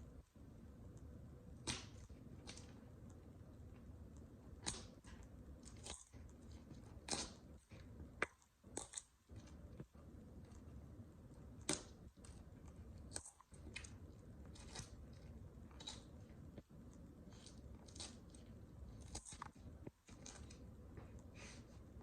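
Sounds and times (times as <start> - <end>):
vegetables crunching under boots: 13.0 - 16.1, 17.3 - 20.7.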